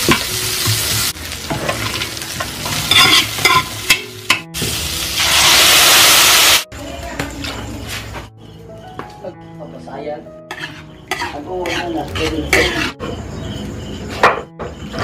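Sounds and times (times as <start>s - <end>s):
sauce sizzling loudly: 0.0s - 6.7s
vegetables stir-frying in wok: 0.0s - 6.7s
spatula scraping a wok: 1.5s - 4.1s, 10.5s - 13.4s.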